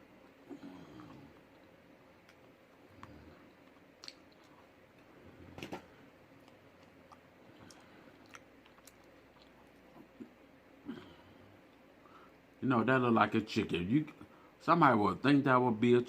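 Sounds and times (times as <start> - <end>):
person chewing food: 0.2 - 12.0.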